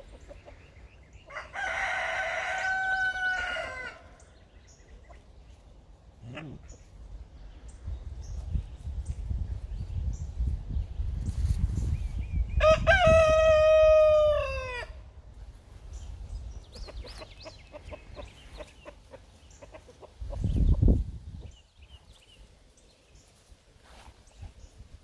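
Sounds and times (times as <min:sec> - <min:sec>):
rooster crowing: 0:01.3 - 0:04.2, 0:12.6 - 0:15.0.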